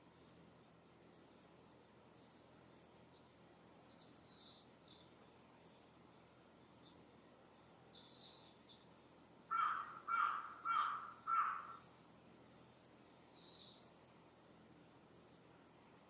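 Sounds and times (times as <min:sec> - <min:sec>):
faint background hiss: 0:00.0 - 0:16.0
small bird chirping: 0:00.2 - 0:01.4, 0:02.0 - 0:06.1, 0:06.7 - 0:07.2, 0:07.9 - 0:08.9, 0:09.5 - 0:14.3, 0:15.2 - 0:15.6
crow cawing: 0:09.5 - 0:11.8.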